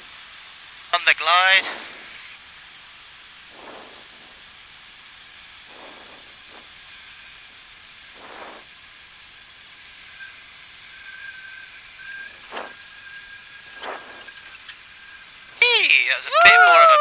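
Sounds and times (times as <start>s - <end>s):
hissing cockpit noise: 0.0s - 17.0s
faint high whistle: 10.1s - 15.5s.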